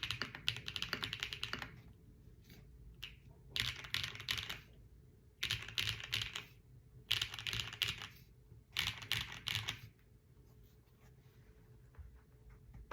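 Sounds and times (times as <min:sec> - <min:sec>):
mechanical keyboard typing: 0:00.0 - 0:01.8, 0:03.0 - 0:04.7, 0:05.4 - 0:09.9.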